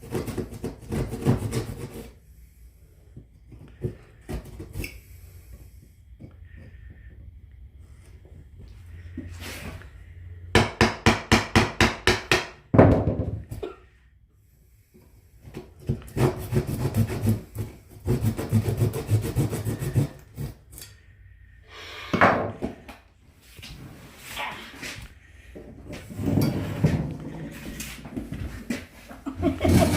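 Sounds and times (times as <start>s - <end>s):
hand tool strokes on wood: 16.0s - 21.0s.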